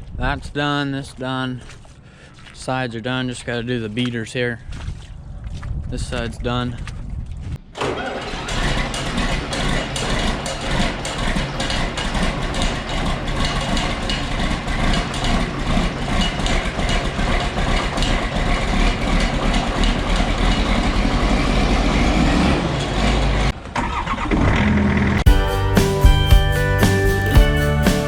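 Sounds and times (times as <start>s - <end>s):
pressure washer engine running: 7.9s - 22.2s.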